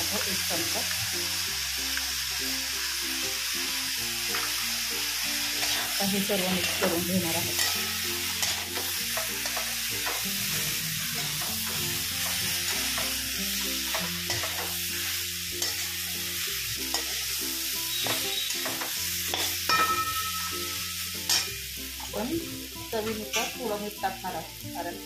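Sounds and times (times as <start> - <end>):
food sizzling in a pan: 0.0 - 25.0
spatula stirring and scraping: 5.5 - 13.2, 13.9 - 14.8.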